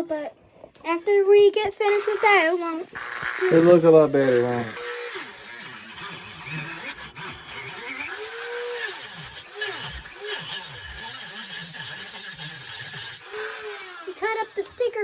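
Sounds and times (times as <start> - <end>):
rotary tool grinding wood: 0.0 - 15.0.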